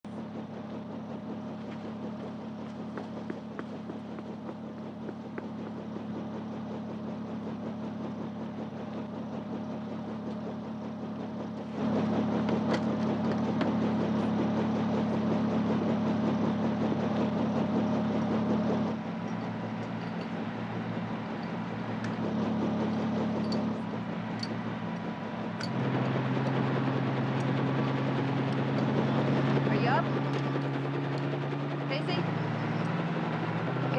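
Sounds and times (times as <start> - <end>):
engines droning: 0.0 - 33.9.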